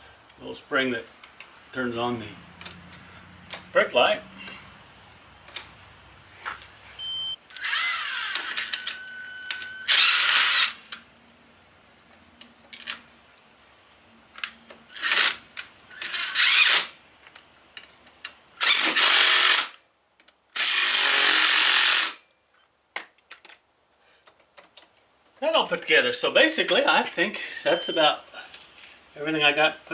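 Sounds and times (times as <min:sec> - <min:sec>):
drill-driver bursts: 0:07.5 - 0:10.9, 0:14.9 - 0:17.0, 0:18.6 - 0:19.8, 0:20.6 - 0:22.2.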